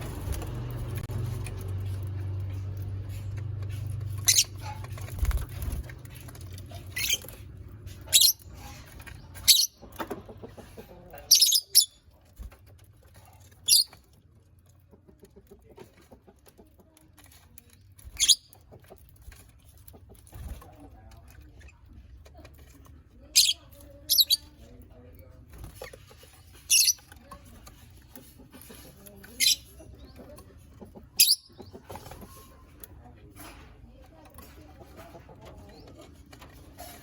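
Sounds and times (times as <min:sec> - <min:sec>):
lovebirds chirping: 0:04.2 - 0:04.8, 0:11.2 - 0:12.0, 0:26.6 - 0:27.1.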